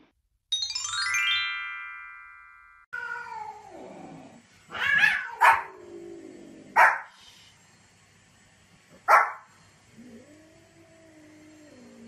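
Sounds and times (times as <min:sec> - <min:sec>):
chime jingle: 0:00.5 - 0:02.9
small dog barking: 0:04.8 - 0:05.8, 0:06.7 - 0:07.1, 0:09.0 - 0:09.5.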